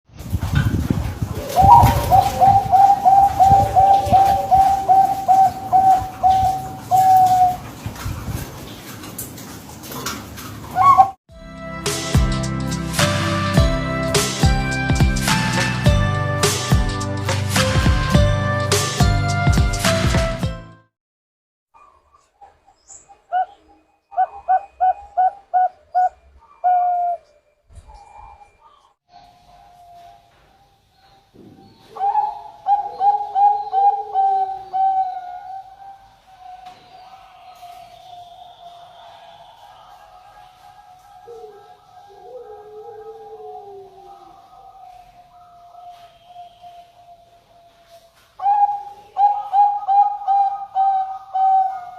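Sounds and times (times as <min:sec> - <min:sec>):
dove cooing: 0:01.3 - 0:08.8, 0:10.7 - 0:11.2, 0:22.4 - 0:51.9.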